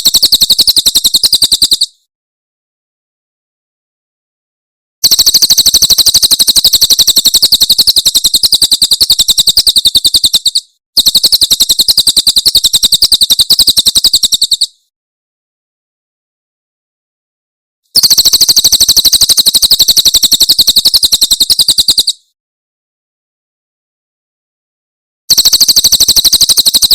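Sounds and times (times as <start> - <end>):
bird singing fast trills: 0.0 - 2.0, 5.0 - 14.8, 18.0 - 22.2, 25.3 - 26.9.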